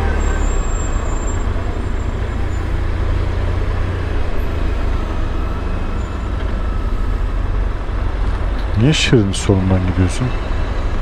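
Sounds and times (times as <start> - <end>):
road and traffic noise: 0.0 - 11.0.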